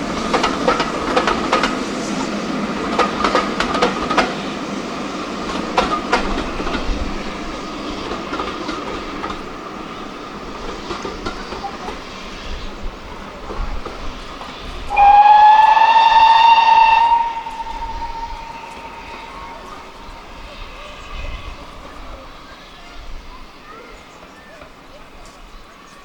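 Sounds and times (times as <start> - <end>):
train wheels rumbling on rails: 0.0 - 26.0
locomotive whistle: 14.9 - 21.8.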